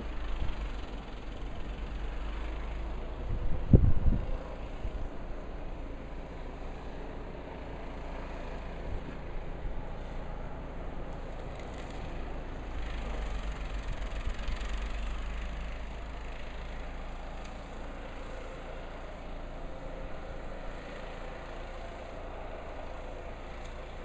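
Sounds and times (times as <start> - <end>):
wind buffeting microphone: 3.3 - 4.3.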